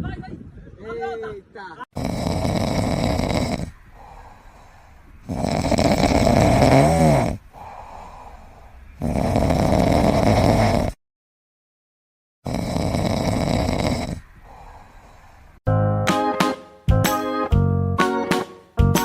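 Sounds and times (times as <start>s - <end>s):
pet snoring loudly: 2.0s - 4.6s, 5.2s - 11.0s, 12.4s - 15.0s.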